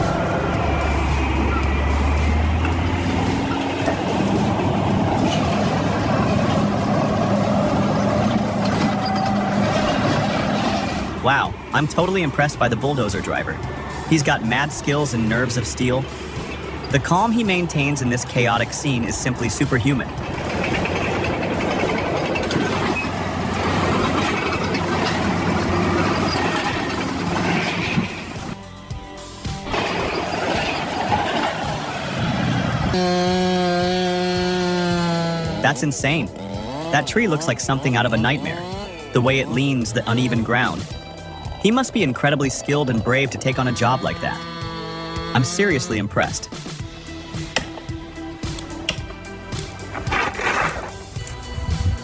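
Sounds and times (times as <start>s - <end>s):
bulldozer diesel engine running: 0.0s - 52.0s.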